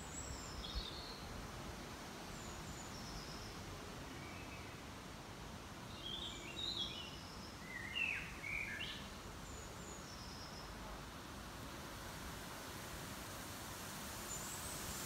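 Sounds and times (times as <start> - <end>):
songbirds chirping: 0.0 - 12.5
steady background hiss: 0.0 - 15.0.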